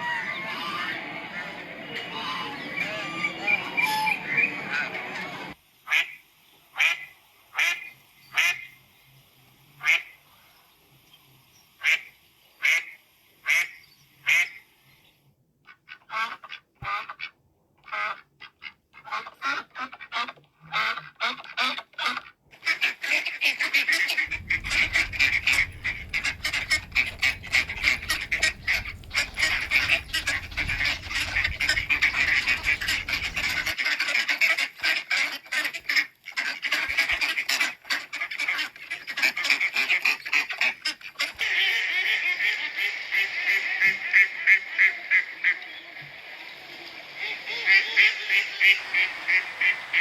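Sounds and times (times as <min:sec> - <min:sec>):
geese honking: 0:00.0 - 0:06.2, 0:19.0 - 0:50.0
ducks quacking: 0:00.0 - 0:08.8, 0:09.8 - 0:10.2, 0:15.7 - 0:50.0.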